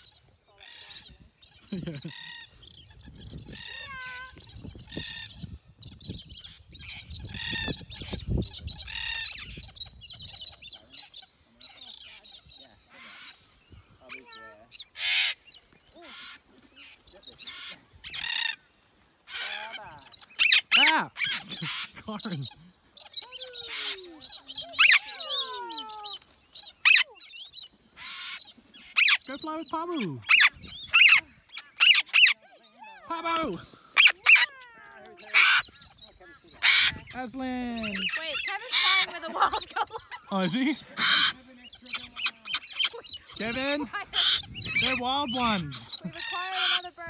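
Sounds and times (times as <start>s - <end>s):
drawn-out falling bird calls: 6.4s - 47.0s
parrots screeching: 8.8s - 9.6s, 14.1s - 18.6s, 19.3s - 22.0s, 23.0s - 27.3s, 28.0s - 29.4s, 30.2s - 33.0s, 34.0s - 37.2s, 37.8s - 47.0s.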